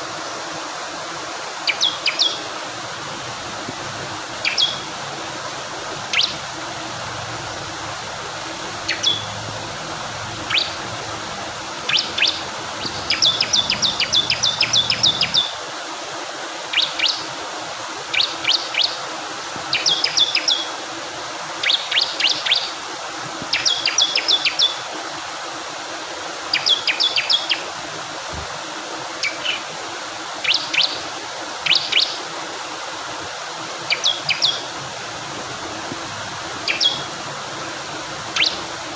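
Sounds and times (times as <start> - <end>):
flowing water rushing: 0.0 - 38.9
bird chirping: 1.7 - 2.4, 4.4 - 4.9, 6.1 - 6.4, 8.7 - 9.7, 10.3 - 11.2, 11.8 - 15.5, 33.9 - 34.7, 36.6 - 37.1, 38.3 - 38.7.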